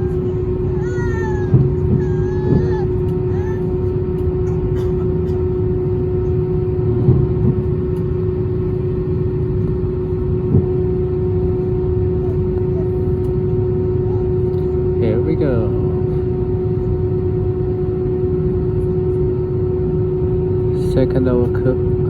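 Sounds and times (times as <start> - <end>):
airliner cabin drone: 0.0 - 22.0.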